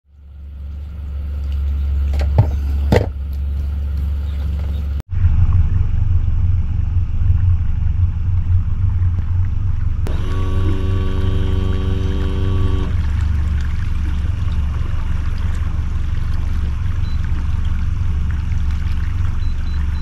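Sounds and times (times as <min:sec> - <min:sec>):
boat motor rumbling: 0:00.1 - 0:20.0.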